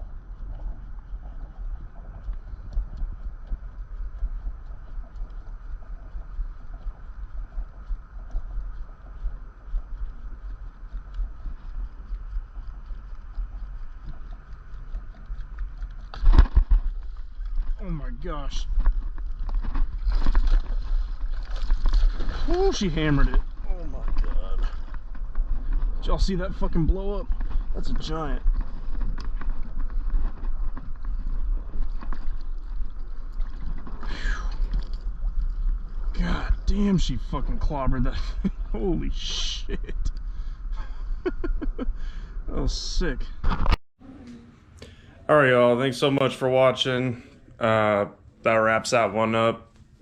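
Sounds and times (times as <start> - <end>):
wind rumbling on microphone: 0.0 - 43.8
fish splashing: 3.3 - 36.6.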